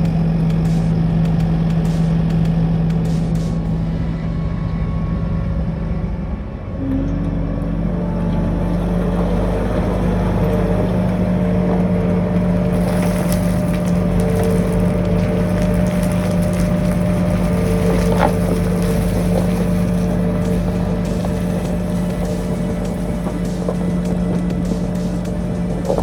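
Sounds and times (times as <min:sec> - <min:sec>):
diesel engine droning: 0:00.0 - 0:26.0
rattling and scraping clatter: 0:06.9 - 0:26.0.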